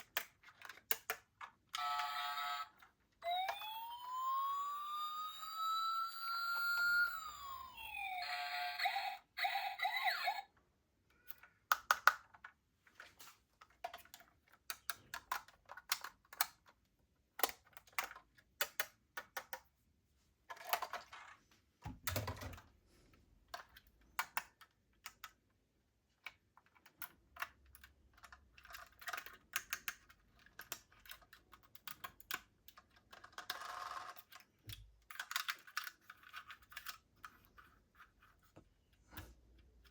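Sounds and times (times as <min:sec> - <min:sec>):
plastic toy cars clicking: 0:00.0 - 0:04.0, 0:11.1 - 0:19.7, 0:20.5 - 0:21.4, 0:23.4 - 0:39.9
toy electronic siren wailing: 0:01.8 - 0:10.5.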